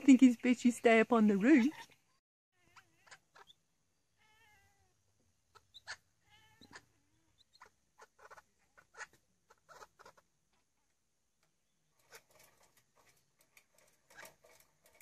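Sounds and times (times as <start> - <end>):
cat bleating calls: 2.6 - 3.3, 4.2 - 5.0, 6.2 - 7.3.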